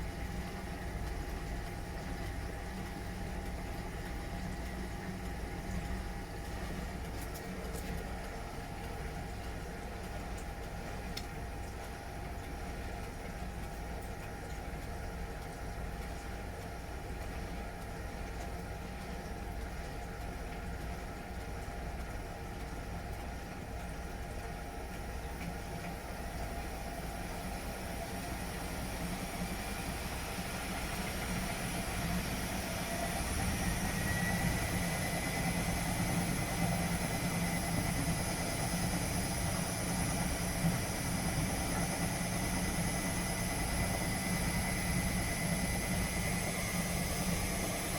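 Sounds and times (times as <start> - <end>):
washing machine motor hum: 0.0 - 47.9
spin drum whine: 26.7 - 47.9.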